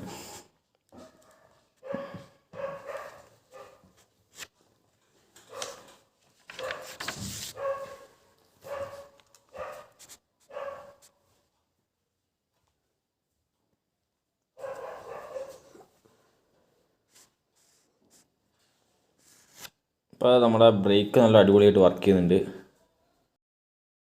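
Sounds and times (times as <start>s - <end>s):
dog barking: 1.0s - 3.9s, 5.5s - 5.9s, 6.6s - 11.1s, 14.6s - 15.9s.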